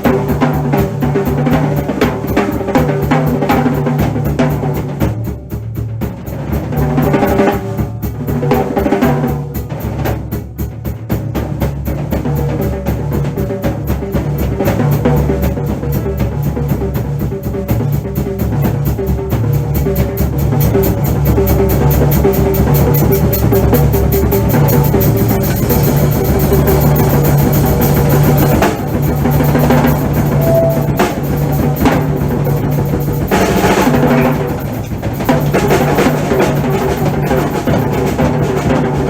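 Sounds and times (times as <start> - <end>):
bass drum strokes: 0.0 - 39.0
drum kit playing: 0.0 - 39.0
cymbal crashes: 22.9 - 38.0.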